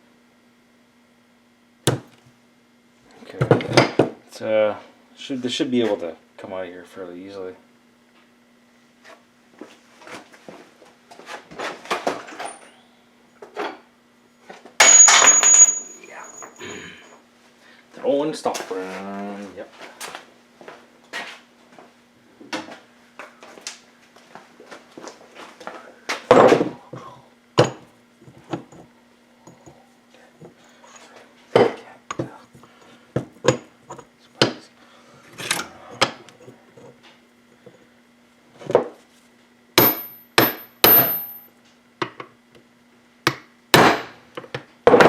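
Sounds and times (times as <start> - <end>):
faint steady hum: 12.0 - 44.7
metal parts and tools clinking: 14.8 - 16.6, 35.4 - 35.8, 39.8 - 41.4.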